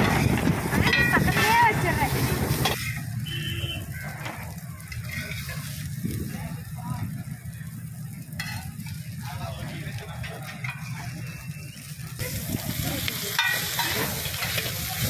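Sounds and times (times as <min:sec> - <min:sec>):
steady low rumble: 0:00.0 - 0:02.7
prawns sizzling in oil: 0:00.0 - 0:15.0
metal spatula scraping: 0:02.5 - 0:03.1, 0:04.9 - 0:05.9.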